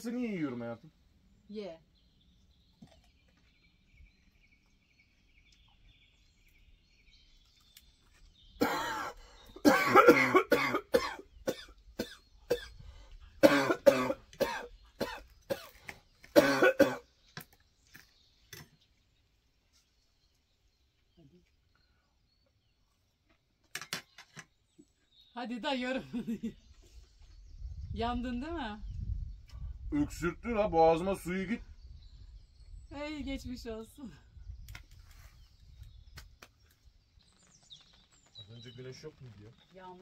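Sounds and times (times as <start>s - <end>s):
person coughing hard: 8.6s - 12.7s, 13.4s - 15.7s, 16.4s - 17.0s.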